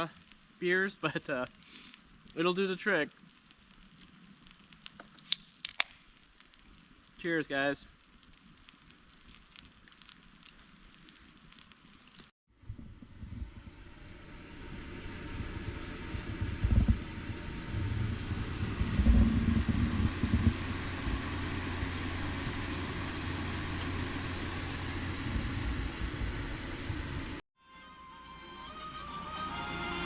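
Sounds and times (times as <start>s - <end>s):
road noise: 11.4s - 27.4s
truck driving rumble: 12.6s - 27.4s.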